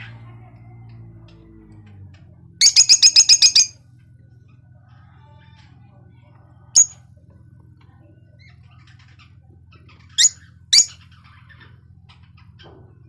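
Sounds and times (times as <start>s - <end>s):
lovebird sharp high chirps: 2.6s - 3.8s, 6.8s - 7.0s, 10.2s - 11.0s
soft bird twittering: 2.6s - 3.8s, 6.8s - 7.0s, 9.9s - 11.7s.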